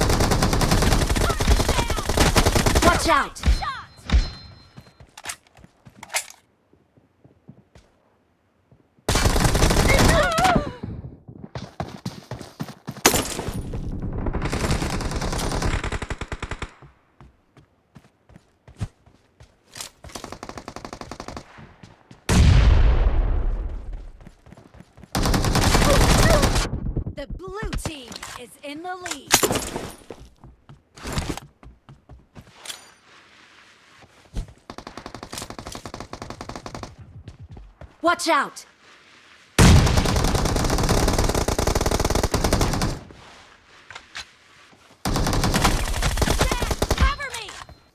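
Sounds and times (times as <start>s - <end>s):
video game automatic gunfire: 39.7s - 43.0s.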